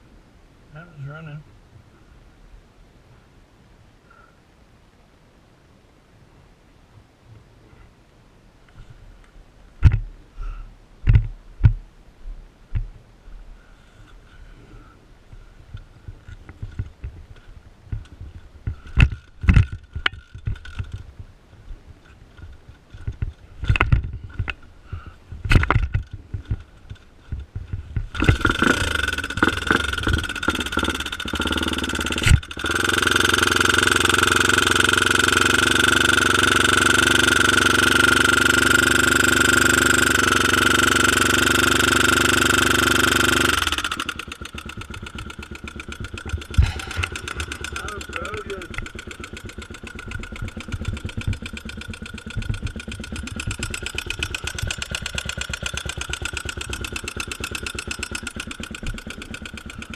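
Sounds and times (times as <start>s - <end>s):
dirt bike engine sputtering and running: 15.7s - 59.9s.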